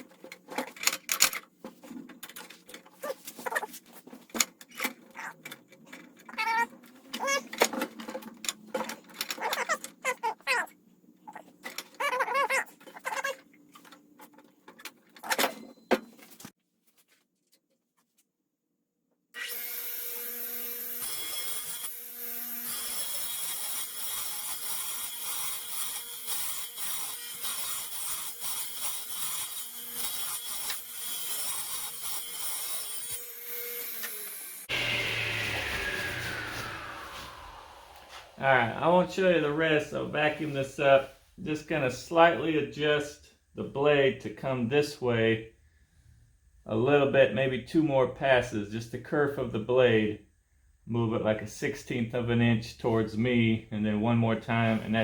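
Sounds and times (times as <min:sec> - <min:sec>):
squeaky rubbing and knocks on wood: 0:06.3 - 0:07.7
radial arm saw cutting wood: 0:19.4 - 0:38.4
saw winding down whine: 0:33.6 - 0:38.8.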